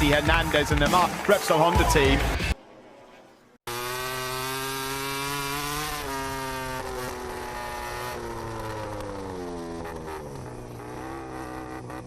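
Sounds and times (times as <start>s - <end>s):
racing motorcycle engine revving: 3.6s - 12.0s.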